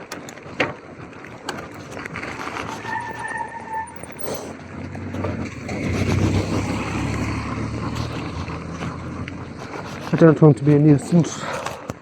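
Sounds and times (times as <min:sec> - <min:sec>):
wind and rain on microphone: 0:00.0 - 0:12.0
car passing on wet road: 0:02.1 - 0:11.7.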